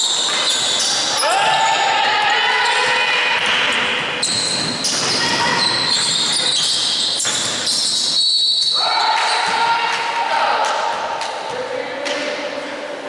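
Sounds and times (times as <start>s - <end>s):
sneakers squeaking: 0.0s - 10.2s
basketball bouncing: 2.8s - 8.2s.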